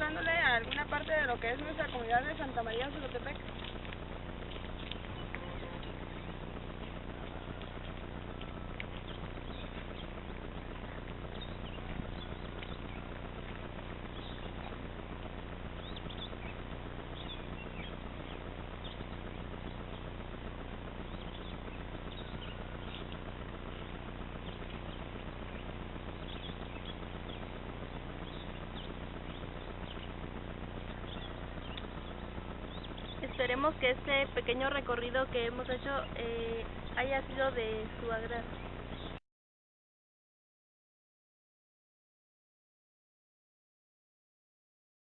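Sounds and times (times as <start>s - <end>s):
low hum: 0.0s - 39.2s
outdoor background noise: 0.0s - 39.2s
faint bird chirps: 1.8s - 14.9s, 15.8s - 20.2s, 21.0s - 33.9s.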